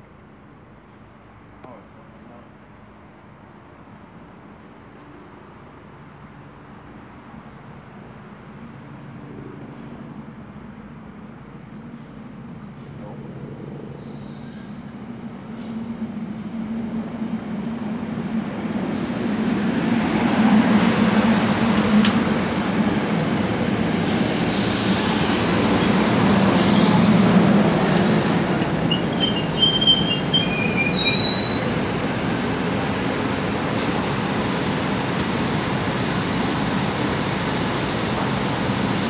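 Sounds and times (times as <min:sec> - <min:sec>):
train rumbling and braking: 0:00.0 - 0:39.0
wheel squeals: 0:27.9 - 0:32.0, 0:32.7 - 0:33.3.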